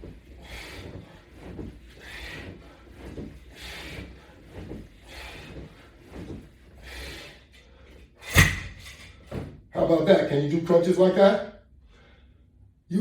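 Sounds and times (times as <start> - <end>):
person breathing: 0.4 - 6.0, 6.8 - 8.2, 11.8 - 12.6
loud thump: 8.3 - 9.5.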